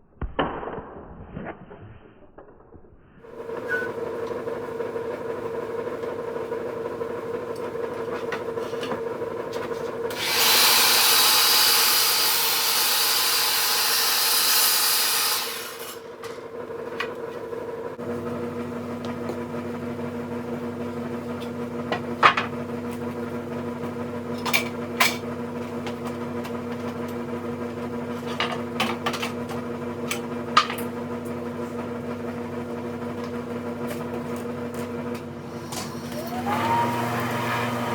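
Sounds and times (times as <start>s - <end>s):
miter saw cutting wood: 3.3s - 19.5s, 34.0s - 37.9s
machine hum: 3.3s - 37.9s.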